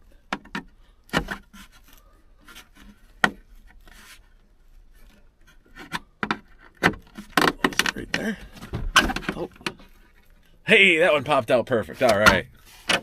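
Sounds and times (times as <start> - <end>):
hands scraping along trim: 11.8 - 13.0.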